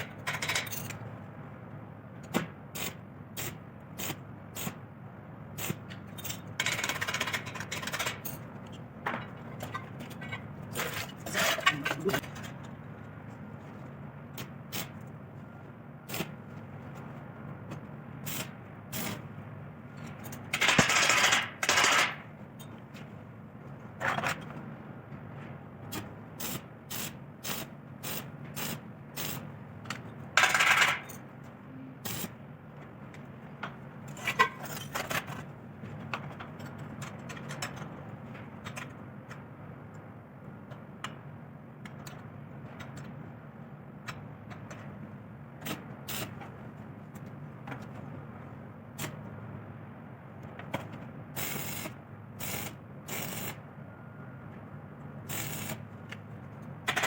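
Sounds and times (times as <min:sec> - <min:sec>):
metal tools clinking and scraping: 0:09.1 - 0:12.7, 0:34.1 - 0:35.4.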